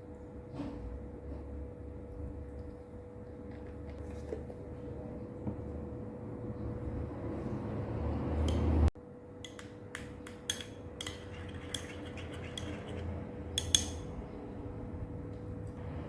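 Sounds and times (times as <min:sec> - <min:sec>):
utensils clinking on dishes: 0:09.4 - 0:14.2.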